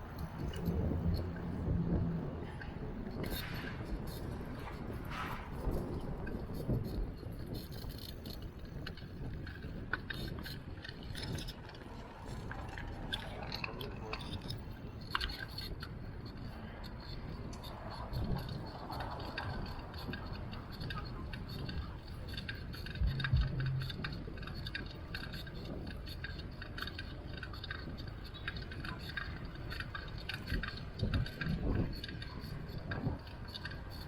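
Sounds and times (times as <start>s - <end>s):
bicycle rattles and ticks: 0.0s - 34.0s
wind and road rumble: 0.0s - 34.0s
low tone: 22.9s - 24.6s.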